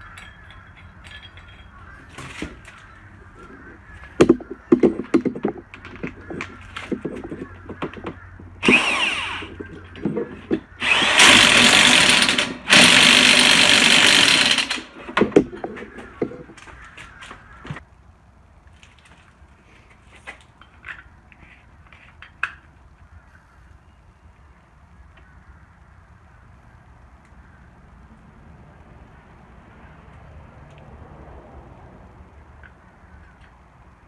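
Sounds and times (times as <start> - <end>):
clicks and knocks of tools: 0.0 - 2.9
power drill running: 8.6 - 9.8, 10.8 - 15.0.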